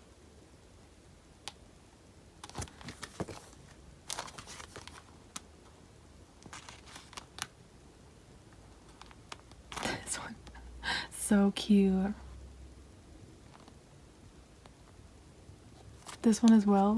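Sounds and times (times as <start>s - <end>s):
paper crinkling: 2.4s - 5.4s, 6.4s - 7.5s.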